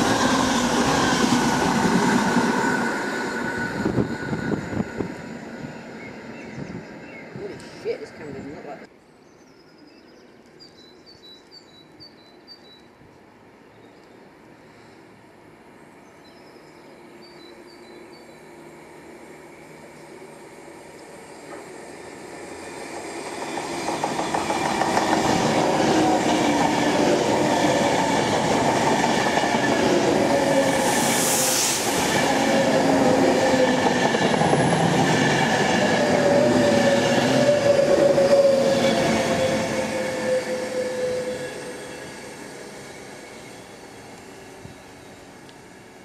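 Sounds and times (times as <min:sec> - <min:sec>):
train wheels on rails: 0:17.4 - 0:46.0
loud hiss: 0:30.6 - 0:32.4.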